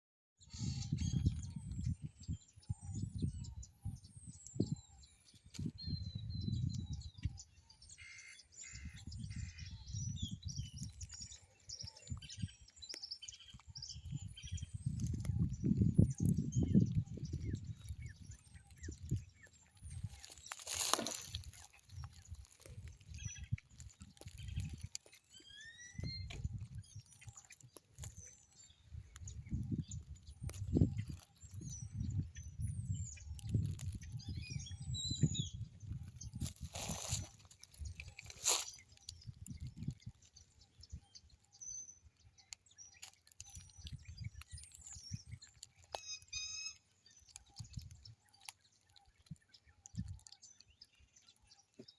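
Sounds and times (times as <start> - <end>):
birds chirping: 0.4 - 51.9
bird chirps and whistles: 25.4 - 26.4, 46.0 - 46.8.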